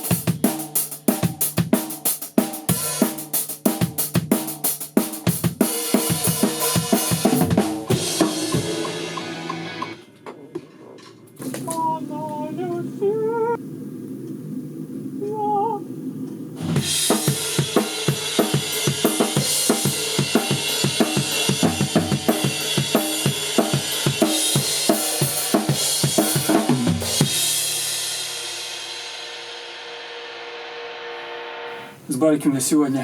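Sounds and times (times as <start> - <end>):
rock drum kit playing: 0.0 - 10.1, 16.6 - 32.0
person singing: 11.5 - 13.6, 15.2 - 15.9.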